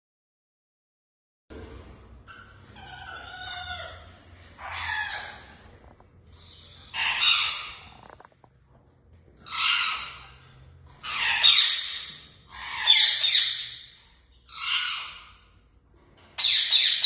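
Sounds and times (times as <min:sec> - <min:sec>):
harsh bird squawks: 0:02.3 - 0:05.7, 0:06.4 - 0:08.2, 0:09.4 - 0:15.6.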